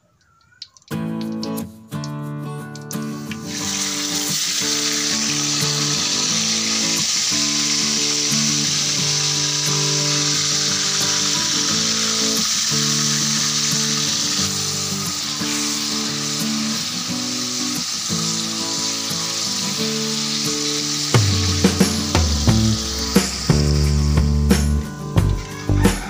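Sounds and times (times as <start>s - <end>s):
background music: 1.0s - 26.0s
mushrooms sizzling in oil: 3.0s - 26.0s.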